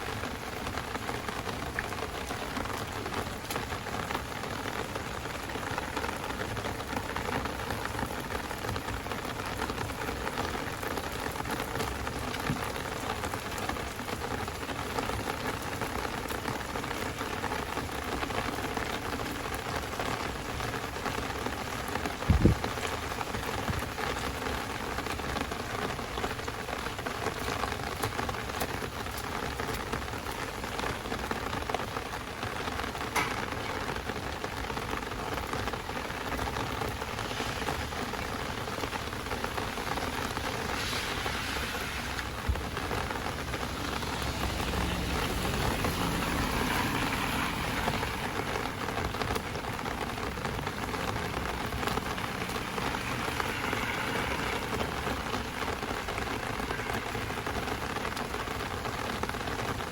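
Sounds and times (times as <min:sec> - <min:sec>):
heavy rain falling: 0:00.0 - 0:59.9
loud low thump: 0:22.3 - 0:22.8.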